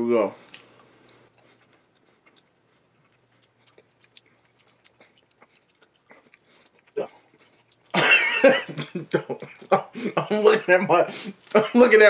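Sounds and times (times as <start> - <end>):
person chewing: 0.4 - 10.2, 11.1 - 11.7
wet mouth clicks: 0.5 - 8.0.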